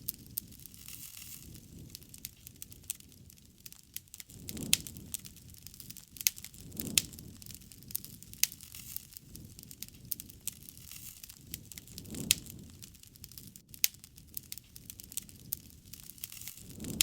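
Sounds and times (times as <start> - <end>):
campfire crackling: 0.0 - 17.0
sharp pops from fire: 0.0 - 17.0.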